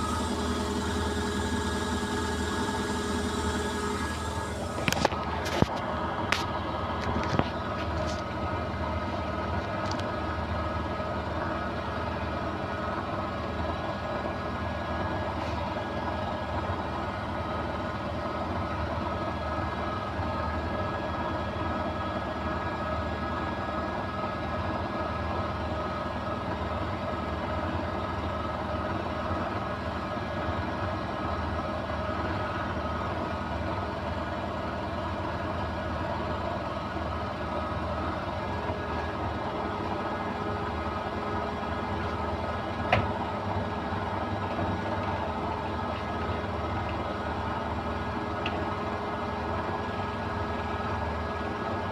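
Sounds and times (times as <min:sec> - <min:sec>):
washing machine spinning: 0:00.0 - 0:07.8, 0:31.8 - 0:51.9.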